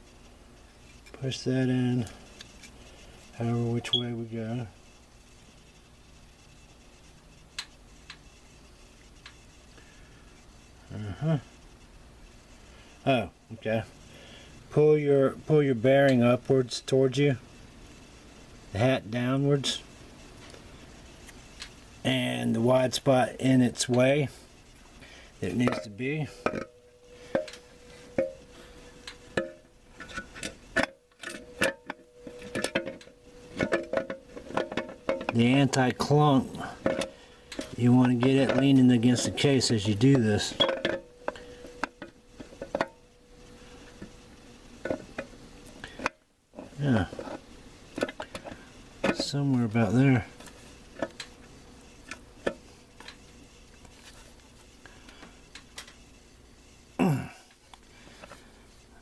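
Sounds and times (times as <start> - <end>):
metal parts knocking and clicking: 29.4 - 35.4, 40.5 - 43.0.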